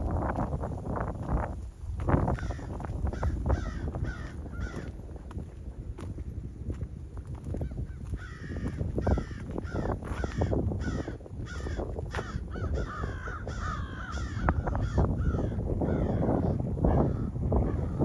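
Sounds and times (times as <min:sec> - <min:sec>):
steady low rumble: 0:00.0 - 0:06.6
crows cawing: 0:02.4 - 0:04.9, 0:08.2 - 0:18.0.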